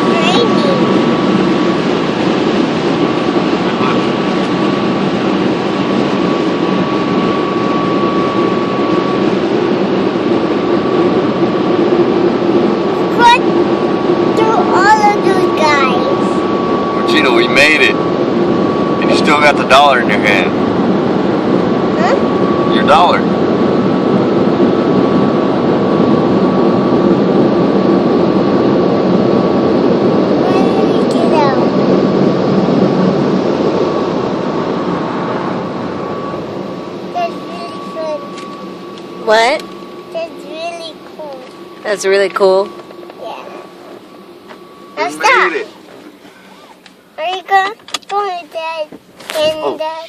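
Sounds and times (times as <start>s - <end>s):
car wash rushing noise: 0.0s - 23.6s, 29.4s - 38.4s, 48.2s - 50.0s
machinery whine: 0.0s - 50.0s.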